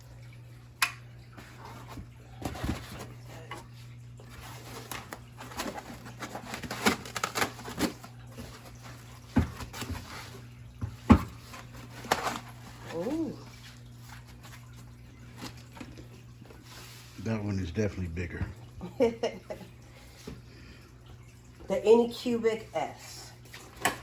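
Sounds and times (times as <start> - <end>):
packaging rustling: 4.4 - 8.9.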